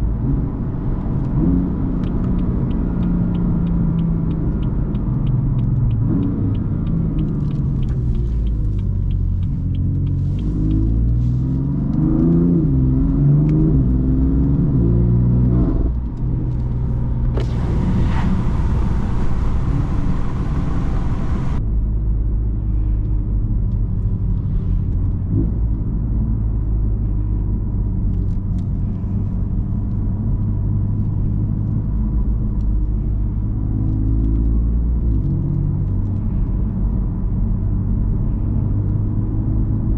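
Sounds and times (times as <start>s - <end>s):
car engine accelerating: 0.0s - 21.6s
loud hiss: 17.4s - 21.6s.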